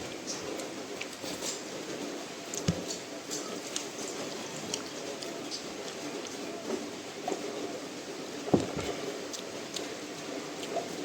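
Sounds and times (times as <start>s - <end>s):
wet chewing: 2.5s - 6.4s.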